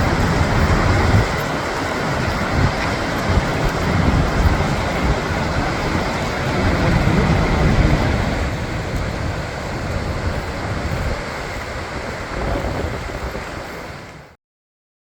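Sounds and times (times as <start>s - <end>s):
waterfall roaring: 0.0s - 14.4s.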